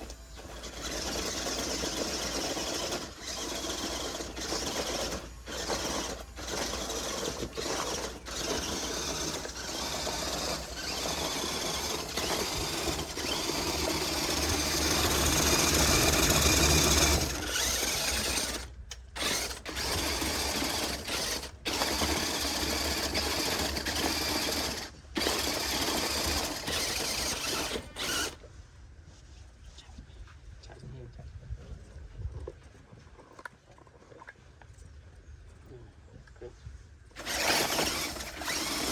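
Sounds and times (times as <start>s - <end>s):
toy truck motor whirring: 0.0s - 28.5s, 37.1s - 38.9s.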